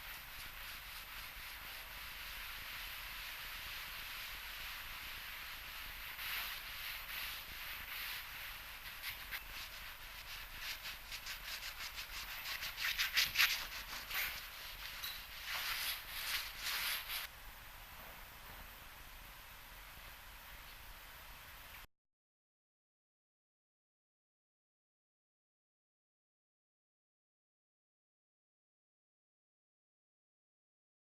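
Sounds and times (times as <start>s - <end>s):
hand sanding strokes: 0.0s - 17.3s.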